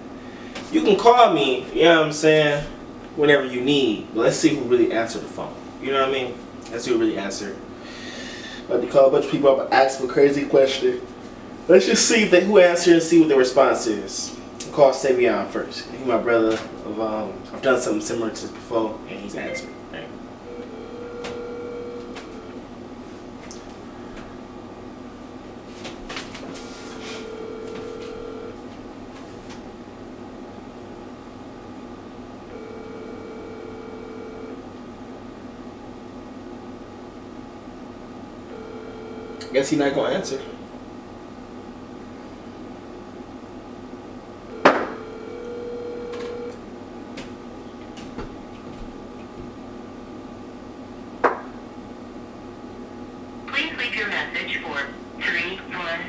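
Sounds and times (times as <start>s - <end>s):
background hum: 0.0s - 56.0s
telephone ringback tone: 20.5s - 22.6s, 26.9s - 28.6s, 32.5s - 34.6s, 38.5s - 39.6s, 44.5s - 46.6s.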